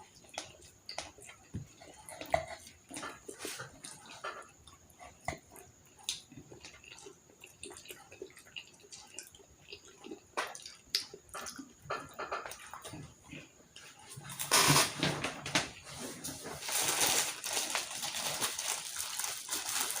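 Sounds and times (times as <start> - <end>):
chewing crunches and mouth smacks: 0.0 - 14.4.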